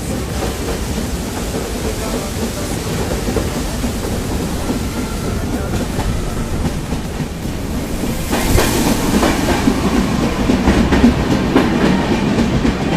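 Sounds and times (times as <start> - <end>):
train rumbling: 0.0 - 12.9
wheels clacking over rail joints: 0.0 - 12.9.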